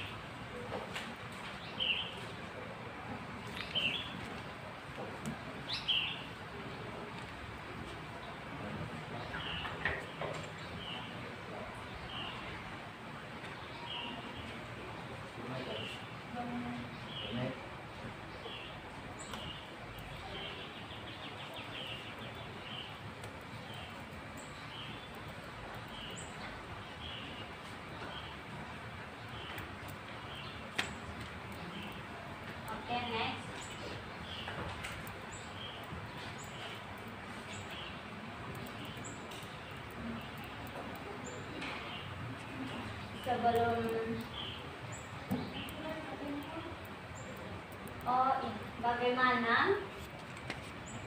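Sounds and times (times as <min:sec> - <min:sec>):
bird chirping: 0:03.6 - 0:04.2, 0:05.7 - 0:06.3, 0:18.3 - 0:28.5, 0:32.8 - 0:49.4.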